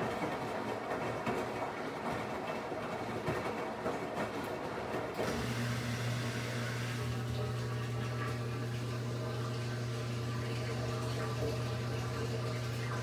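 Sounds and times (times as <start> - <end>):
washing machine running: 0.0 - 13.0
low electric hum: 5.2 - 13.0.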